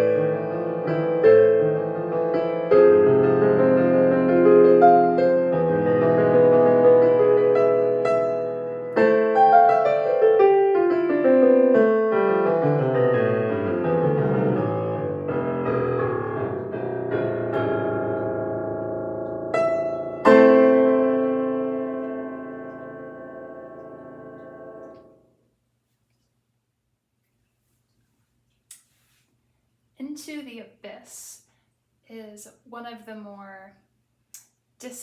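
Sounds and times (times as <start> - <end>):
solo piano: 0.0 - 25.2.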